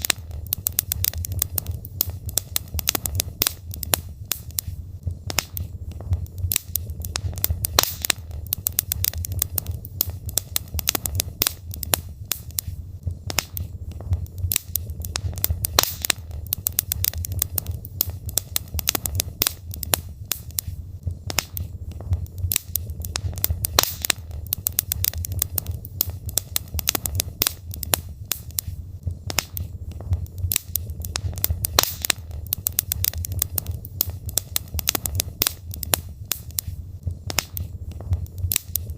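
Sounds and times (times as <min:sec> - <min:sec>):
logs crackling in fireplace: 0:00.0 - 0:38.9.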